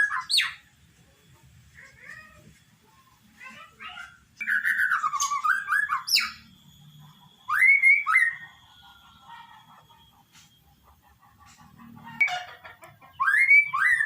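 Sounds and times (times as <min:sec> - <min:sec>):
bird singing whistles: 0:00.0 - 0:00.7, 0:04.4 - 0:08.9, 0:13.2 - 0:14.0.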